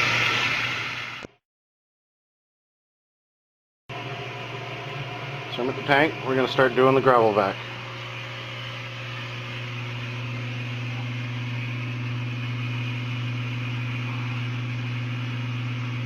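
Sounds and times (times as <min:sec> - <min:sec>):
water rushing through vacuum: 0:00.0 - 0:01.4
electric hum: 0:03.9 - 0:16.0.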